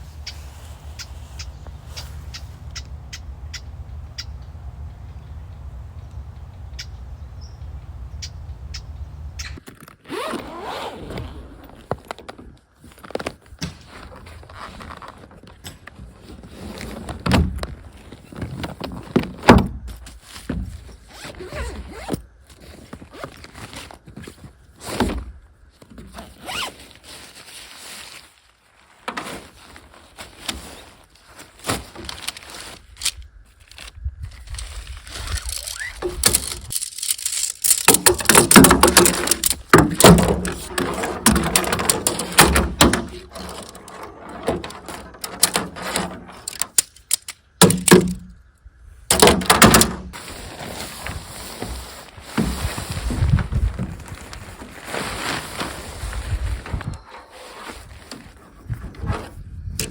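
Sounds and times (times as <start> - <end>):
gear thunking down: 0.0 - 9.6, 35.1 - 48.3
bags and fabric rustling: 0.0 - 19.4, 20.1 - 25.0, 25.7 - 46.6, 50.1 - 59.4
zips opening: 10.0 - 11.8, 26.4 - 26.8, 35.1 - 37.6.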